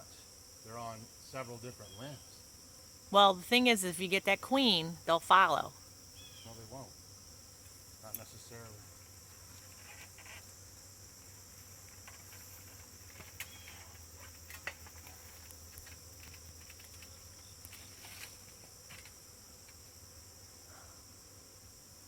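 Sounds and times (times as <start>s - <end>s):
insect chirring: 1.3s - 22.0s.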